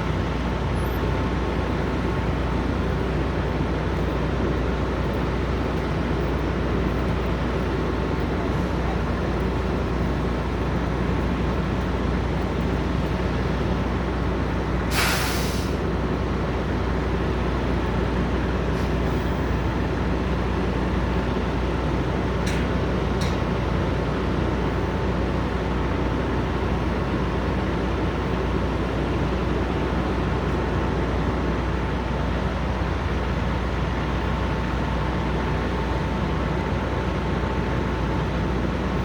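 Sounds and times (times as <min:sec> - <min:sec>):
idling truck engines: 0:00.0 - 0:39.0
air brake hiss: 0:14.9 - 0:15.8.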